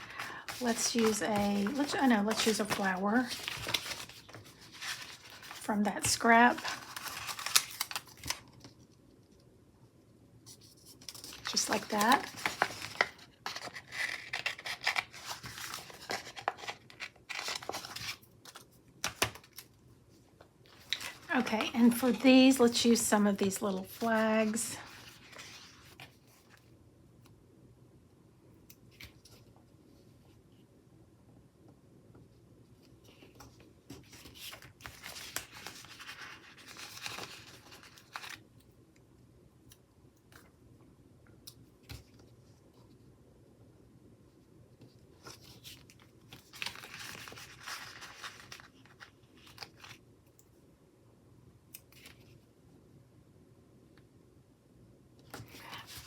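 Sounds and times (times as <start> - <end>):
light paper taps and crinkles: 0.2 - 8.8.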